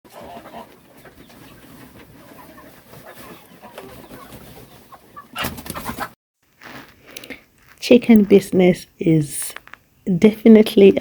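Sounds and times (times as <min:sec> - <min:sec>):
chickens clucking: 0:00.1 - 0:06.2.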